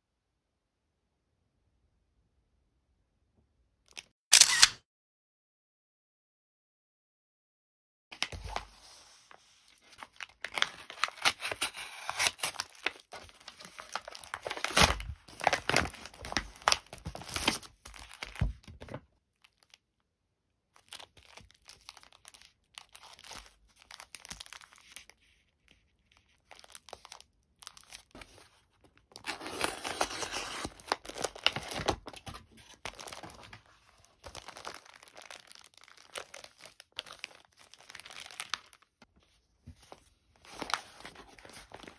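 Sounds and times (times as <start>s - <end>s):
plastic packaging crinkling and tearing: 9.7s - 19.8s, 20.8s - 39.1s, 40.4s - 41.9s.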